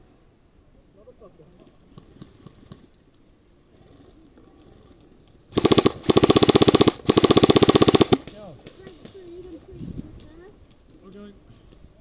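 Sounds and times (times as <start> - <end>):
airsoft gun firing full auto: 5.5 - 8.4.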